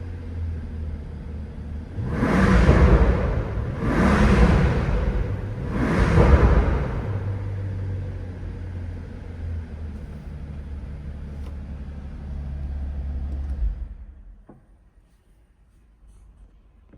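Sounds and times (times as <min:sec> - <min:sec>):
car engine idling: 0:00.0 - 0:14.3.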